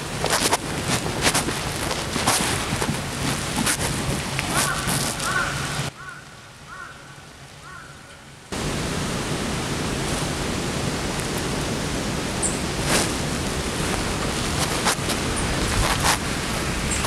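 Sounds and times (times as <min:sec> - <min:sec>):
small bird calls: 0:04.5 - 0:08.1
loud steady rushing noise: 0:08.5 - 0:17.0.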